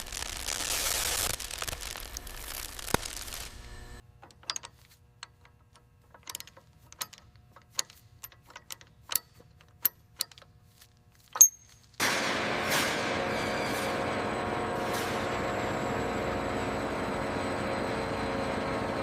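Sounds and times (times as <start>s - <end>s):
loud steady hiss: 0.0s - 4.0s
metallic ring: 11.4s - 12.0s.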